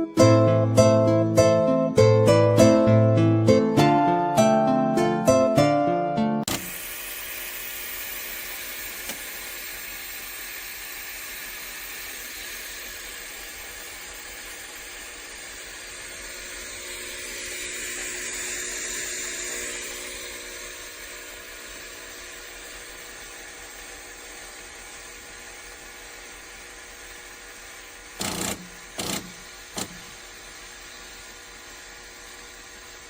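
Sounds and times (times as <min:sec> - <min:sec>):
background music: 0:00.0 - 0:06.5
faint mechanical hum: 0:06.4 - 0:33.0
espresso machine hissing: 0:06.5 - 0:33.0.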